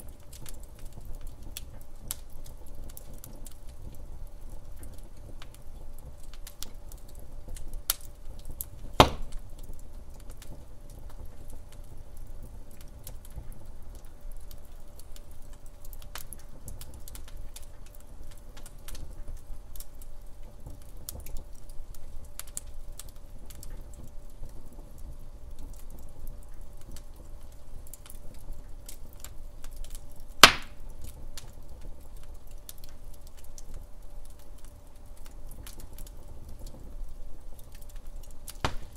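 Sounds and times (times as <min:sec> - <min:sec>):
wood fire crackling: 0:00.0 - 0:38.9
loud sharp fire pops: 0:08.8 - 0:09.7, 0:30.4 - 0:30.9, 0:38.5 - 0:38.9.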